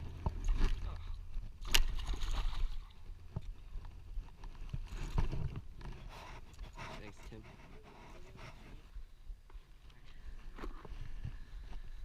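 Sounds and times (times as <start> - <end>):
water splashing and sloshing: 0.0 - 7.1.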